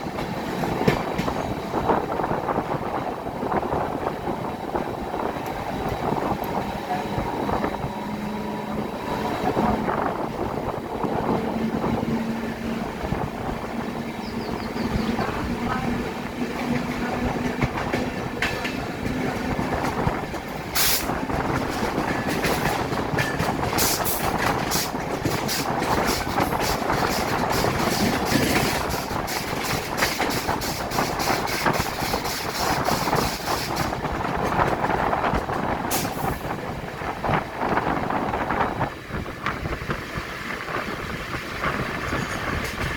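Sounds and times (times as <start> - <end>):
train rumbling on rails: 0.0 - 42.9
wheels clicking over rail joints: 7.5 - 36.5, 39.4 - 42.9.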